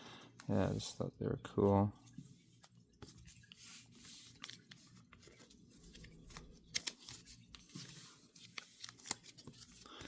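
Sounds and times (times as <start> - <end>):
cards rustling and clicking: 2.6 - 10.0.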